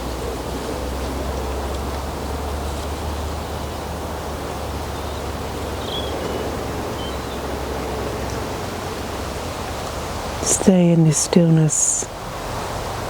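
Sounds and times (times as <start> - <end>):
woodland hiss: 0.0 - 13.0
faint bird chirps: 4.9 - 7.4.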